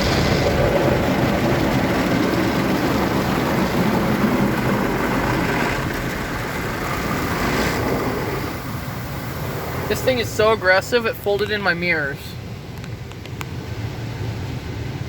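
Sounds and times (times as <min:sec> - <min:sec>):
car wash brushes scrubbing: 0:00.0 - 0:10.5.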